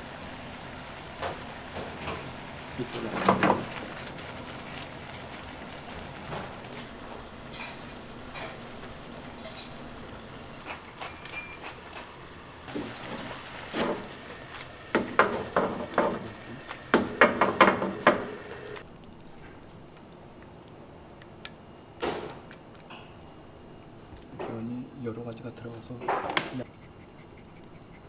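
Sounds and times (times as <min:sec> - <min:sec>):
metal utensils clinking on dishes: 0:07.5 - 0:12.2.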